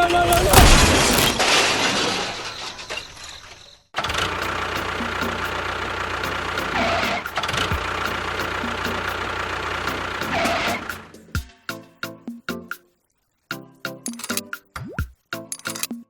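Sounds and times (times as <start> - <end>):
tractor engine humming: 4.0 - 11.3.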